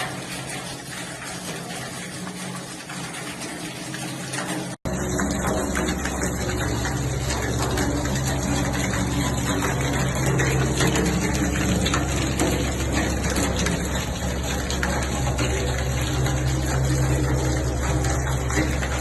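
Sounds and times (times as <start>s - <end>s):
water pouring and splashing: 0.0s - 19.0s
low hum: 4.9s - 19.0s.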